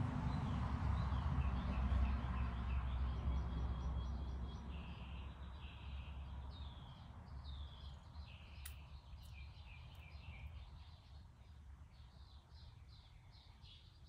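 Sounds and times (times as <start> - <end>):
sharp click: 8.6 - 9.4.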